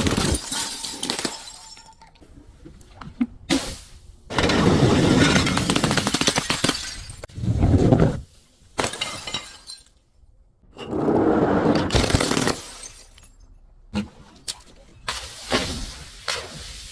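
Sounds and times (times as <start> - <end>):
glass crushing and shattering: 0.0 - 2.2, 4.4 - 7.3, 8.8 - 10.2, 11.9 - 13.6.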